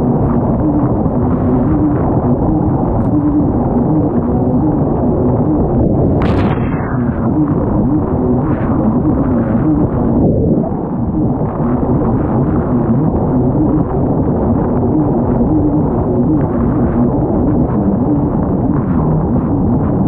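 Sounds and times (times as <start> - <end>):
sharp crash: 6.2 - 7.6.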